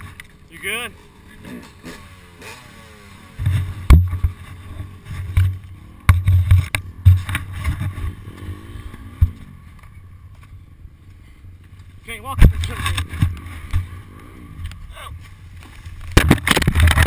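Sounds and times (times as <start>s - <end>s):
dirt bike engine revving: 0.0s - 10.3s, 12.1s - 14.9s.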